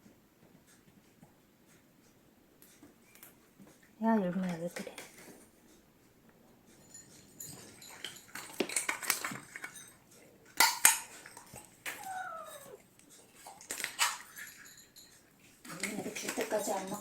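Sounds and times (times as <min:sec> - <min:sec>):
knocks and rustles: 0:06.6 - 0:17.0
cat meowing: 0:11.9 - 0:12.8.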